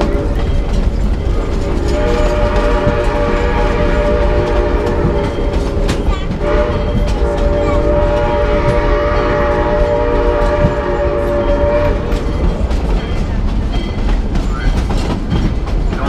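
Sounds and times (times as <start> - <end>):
train rumble and clatter: 0.0 - 16.0
steam locomotive whistle: 1.3 - 12.7.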